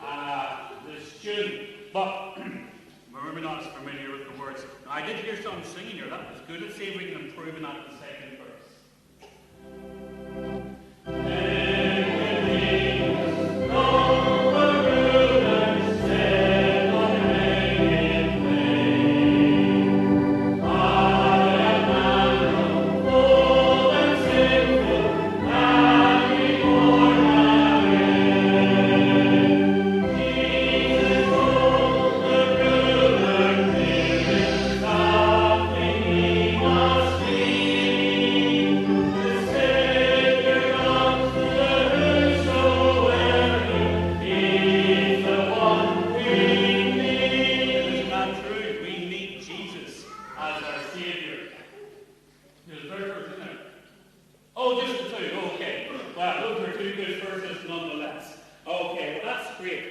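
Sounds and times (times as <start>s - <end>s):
instrumental accompaniment with bass: 9.5s - 48.4s
children and congregation singing: 10.4s - 52.2s.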